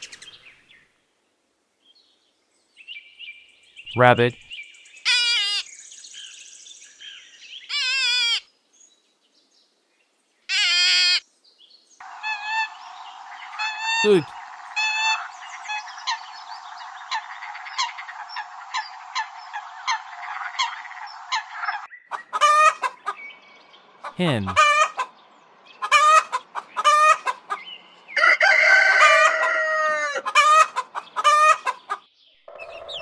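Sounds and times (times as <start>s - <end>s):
hen clucking: 17.0s - 23.2s, 24.0s - 25.1s, 25.8s - 27.7s, 28.4s - 33.0s.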